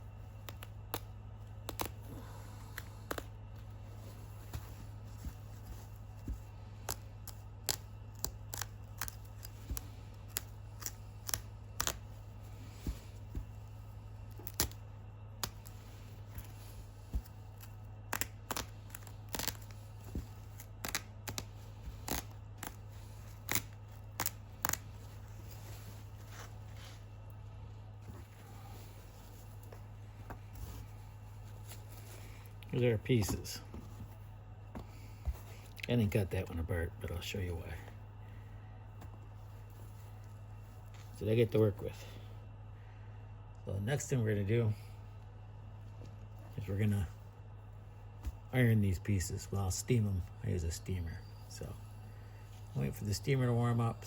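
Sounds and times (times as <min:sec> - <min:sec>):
scissors snipping fabric: 0:06.8 - 0:12.1.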